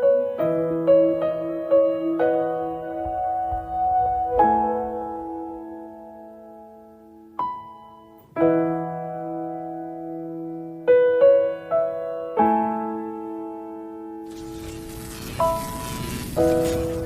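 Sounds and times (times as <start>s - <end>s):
soft piano music: 0.0s - 14.2s
steady hiss: 14.3s - 17.0s.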